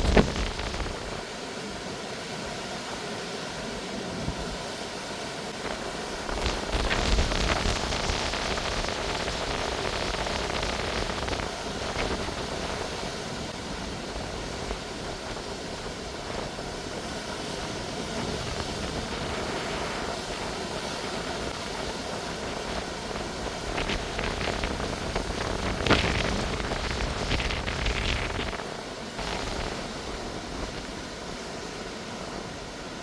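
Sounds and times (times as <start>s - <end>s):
ocean surf breaking on rocks: 0.0s - 33.0s.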